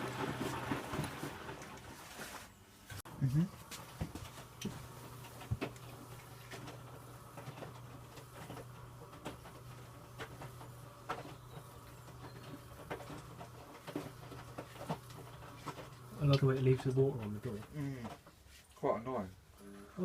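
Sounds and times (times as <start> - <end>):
laundry knocking and splashing: 0.0 - 1.9
washing machine motor hum: 0.0 - 2.2, 3.0 - 18.2.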